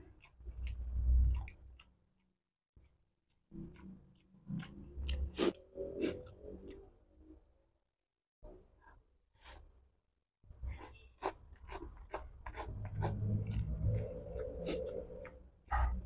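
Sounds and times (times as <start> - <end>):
wet chewing: 0.0 - 7.0, 10.8 - 16.0
slurping: 3.5 - 7.0, 10.6 - 16.0.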